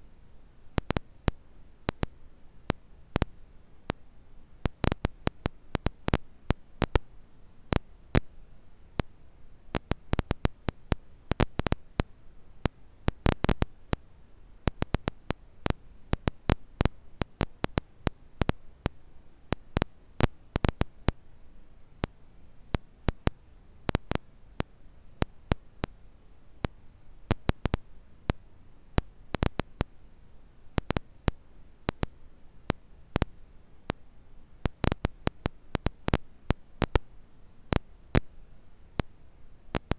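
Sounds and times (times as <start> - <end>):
faint steady hiss: 0.0 - 39.9
campfire crackling and popping: 4.7 - 6.2, 14.7 - 15.4, 34.7 - 36.2.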